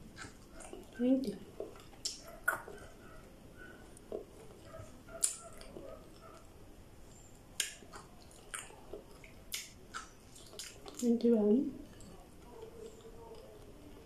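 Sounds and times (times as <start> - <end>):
person crunching okra: 1.6 - 2.8, 7.5 - 11.1.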